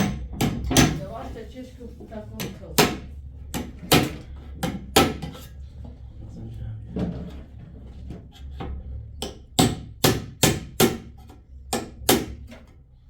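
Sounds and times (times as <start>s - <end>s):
hammer strikes: 0.0s - 1.1s, 2.4s - 5.4s, 9.2s - 12.6s.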